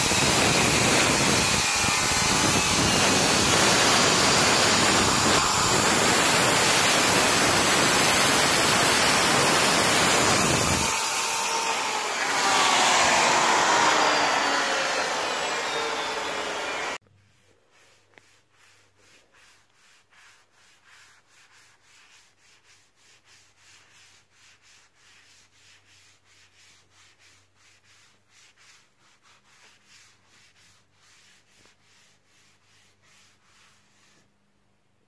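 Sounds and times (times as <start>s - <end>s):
hand sanding wood: 0.0s - 34.3s.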